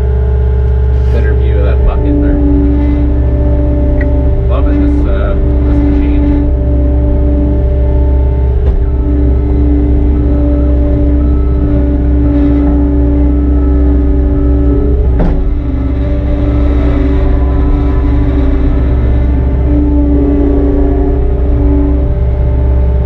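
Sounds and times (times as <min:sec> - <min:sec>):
earthmoving machine engine running: 0:00.0 - 0:23.0
sharp knocks: 0:15.1 - 0:15.7.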